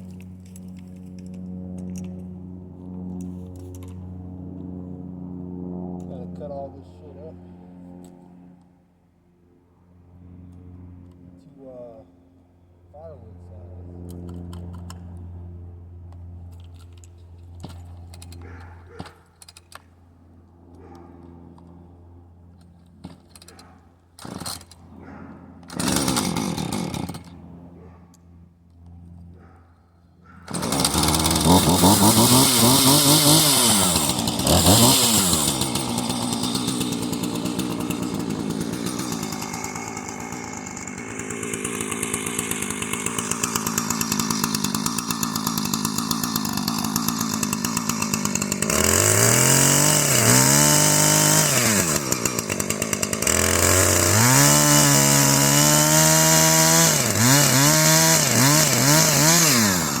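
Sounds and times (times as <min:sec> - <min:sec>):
chainsaw cutting logs: 0:00.0 - 0:04.1, 0:16.2 - 0:21.8, 0:22.5 - 0:29.6, 0:30.2 - 1:00.0.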